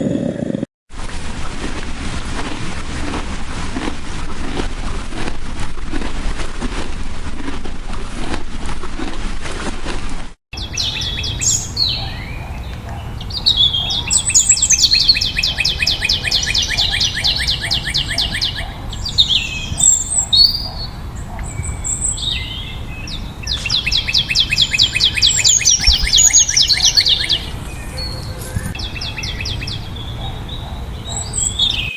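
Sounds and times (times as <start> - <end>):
bird calls: 10.6 - 31.9
songbird trilling: 10.6 - 31.9.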